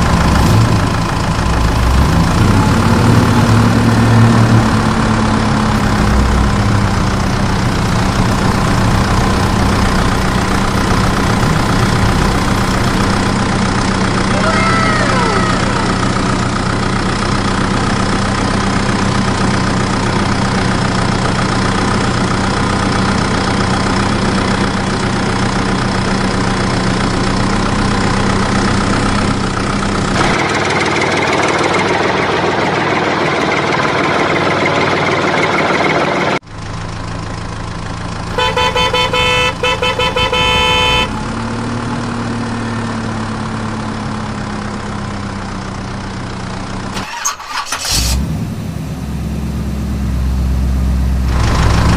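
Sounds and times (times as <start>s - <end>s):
pulsing horn beeps: 38.3s - 41.2s.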